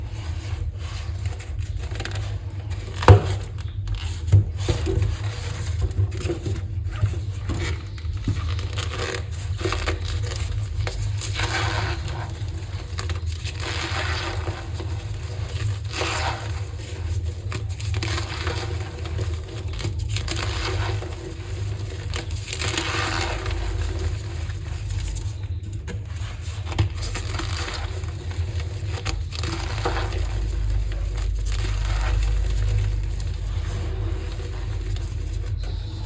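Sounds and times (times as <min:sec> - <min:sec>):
steady low hum: 0:09.2 - 0:36.0.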